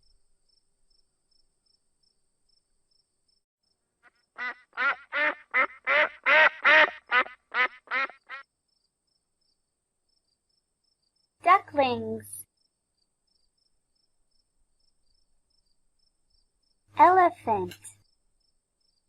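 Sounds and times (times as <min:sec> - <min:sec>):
duck quacking: 0:04.4 - 0:08.4.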